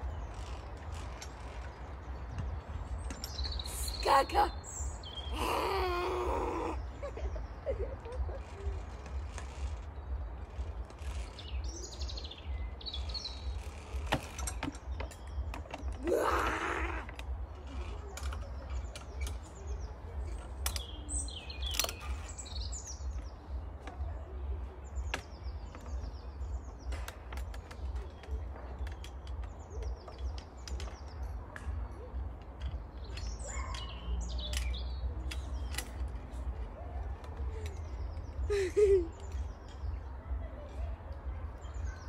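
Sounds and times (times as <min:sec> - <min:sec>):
wind rumble on microphone: 0:00.0 - 0:03.8
small birds chirping: 0:00.0 - 0:42.0.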